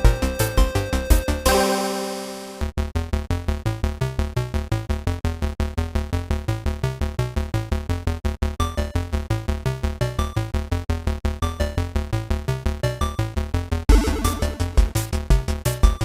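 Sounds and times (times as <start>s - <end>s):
electronic music with synthesizer: 0.0s - 2.7s, 13.9s - 16.0s.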